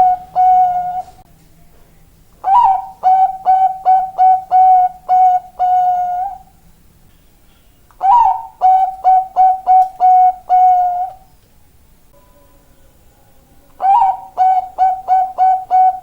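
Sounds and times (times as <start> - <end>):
dove cooing: 0.0 - 1.2, 2.4 - 6.5, 8.0 - 11.3, 13.7 - 16.0.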